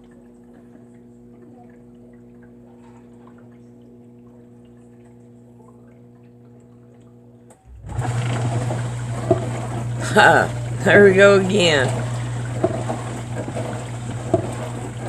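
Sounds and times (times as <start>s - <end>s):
dishwasher humming: 0.0s - 15.0s
faint water drips: 0.0s - 15.0s
water spraying and swishing: 7.9s - 15.0s.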